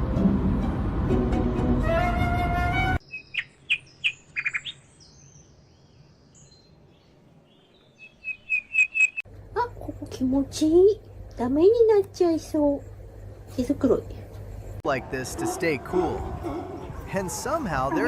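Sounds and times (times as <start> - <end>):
small bird chirping: 3.0 - 9.3.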